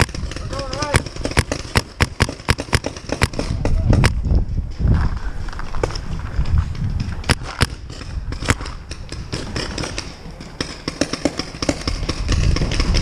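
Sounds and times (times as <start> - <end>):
paintball markers firing: 0.0 - 4.2, 7.2 - 13.0.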